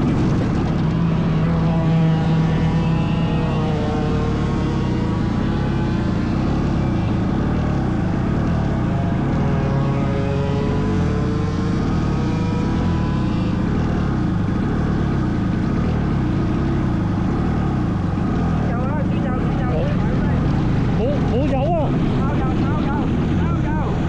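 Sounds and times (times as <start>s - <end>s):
heavy steady rumble: 0.0s - 24.0s
racing engines revving: 0.0s - 24.0s.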